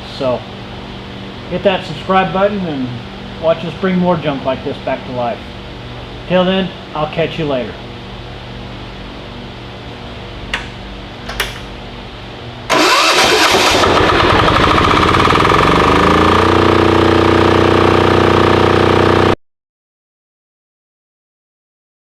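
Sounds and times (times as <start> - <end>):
generator clicks: 10.5 - 11.8
diesel generator engine running: 10.5 - 19.4.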